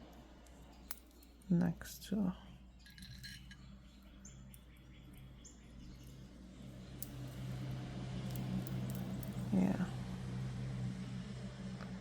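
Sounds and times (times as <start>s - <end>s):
low steady hum: 0.0s - 12.0s
faint bird chirps: 2.4s - 7.0s.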